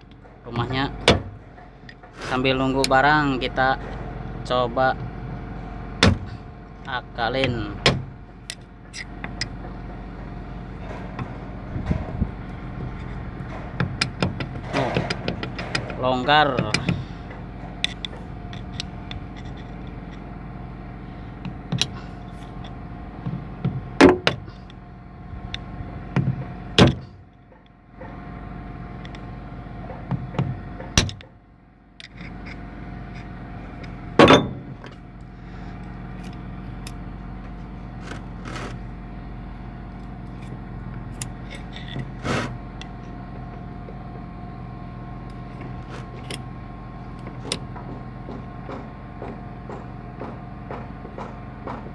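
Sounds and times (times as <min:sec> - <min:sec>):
metallic knocks and clanks: 0:00.0 - 0:20.5, 0:32.0 - 0:39.0, 0:45.2 - 0:51.9
steady mechanical hum: 0:00.0 - 0:51.9.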